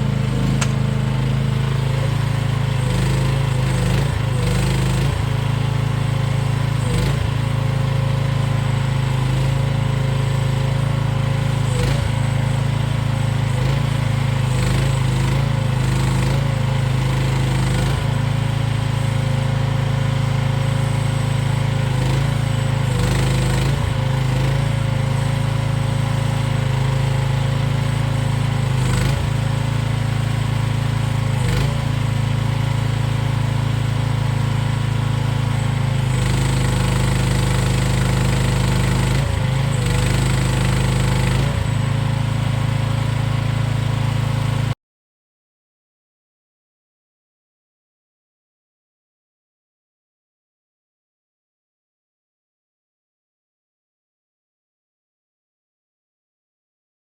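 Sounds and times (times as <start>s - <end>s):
excavator engine running: 0.0s - 44.7s.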